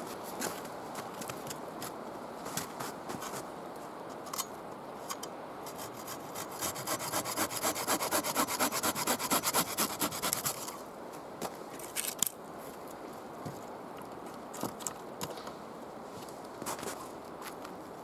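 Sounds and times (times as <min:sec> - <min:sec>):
hand saw cutting wood: 0:05.7 - 0:10.8.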